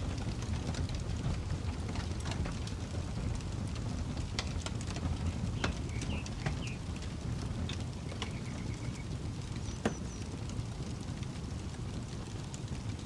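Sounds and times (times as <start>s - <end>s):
campfire crackling: 0.0s - 13.0s
bird chirping: 5.6s - 6.8s, 8.1s - 10.2s.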